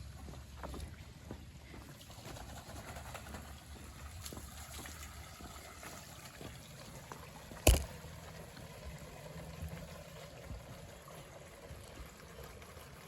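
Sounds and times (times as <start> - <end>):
water trickling from a pipe: 0.0 - 13.0
sharp knock: 7.7 - 7.9.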